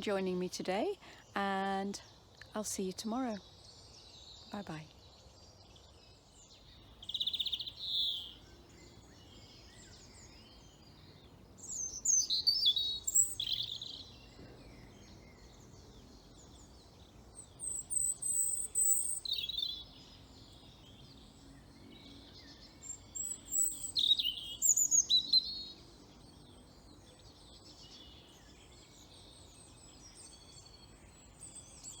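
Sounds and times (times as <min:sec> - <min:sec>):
birdsong: 0:00.0 - 0:32.0.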